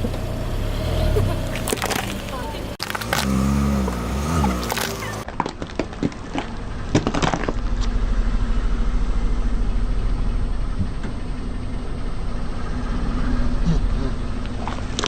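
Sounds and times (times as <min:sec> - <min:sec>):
car engine idling: 0:00.0 - 0:15.0
sharp crackles: 0:01.5 - 0:03.4, 0:04.4 - 0:09.5.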